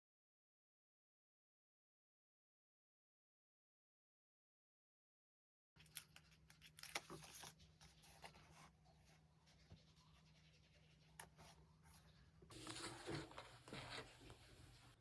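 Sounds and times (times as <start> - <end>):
paper rustling: 5.8 - 15.0.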